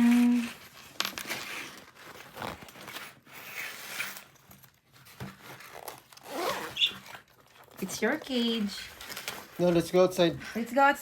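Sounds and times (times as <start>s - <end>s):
zipper pulls on fabric: 5.7s - 7.2s.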